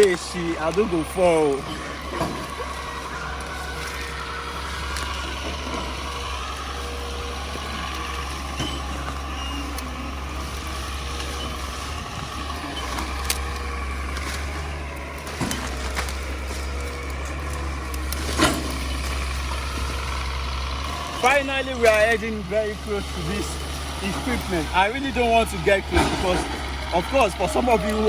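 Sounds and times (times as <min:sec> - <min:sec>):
heavy machinery engine rumbling: 0:00.0 - 0:28.0.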